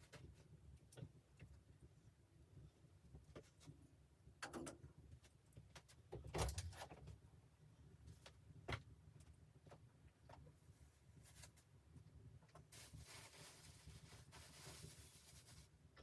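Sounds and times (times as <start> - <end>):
rustling: 12.7 - 15.8.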